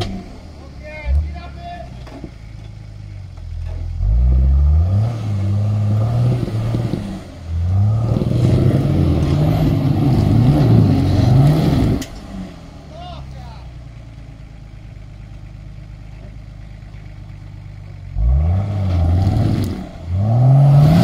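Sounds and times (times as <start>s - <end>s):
engine revving hard: 4.0s - 12.6s, 18.1s - 21.0s.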